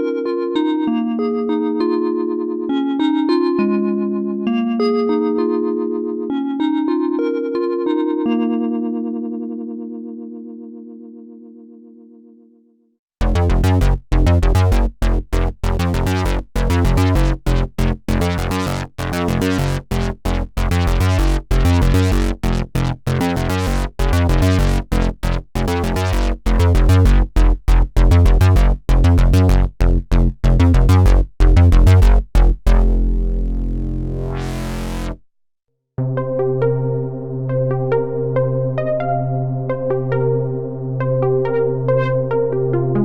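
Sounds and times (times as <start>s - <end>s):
punchy bass synth notes: 13.2s - 35.2s
synthesizer held note: 32.7s - 35.2s.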